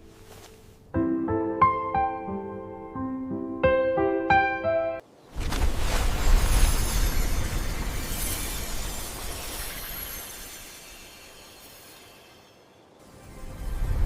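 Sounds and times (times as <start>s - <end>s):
dense even hiss: 5.6s - 14.0s.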